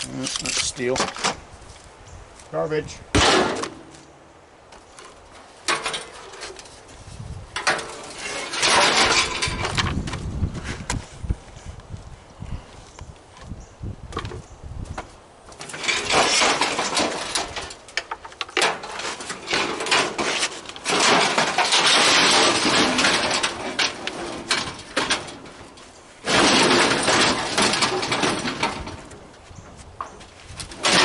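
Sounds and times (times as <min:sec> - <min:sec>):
metal grill parts clattering: 0:05.7 - 0:06.8, 0:07.6 - 0:09.9, 0:15.6 - 0:29.2, 0:30.1 - 0:31.0
metal scraping: 0:07.6 - 0:10.0, 0:15.6 - 0:17.8, 0:18.5 - 0:29.2.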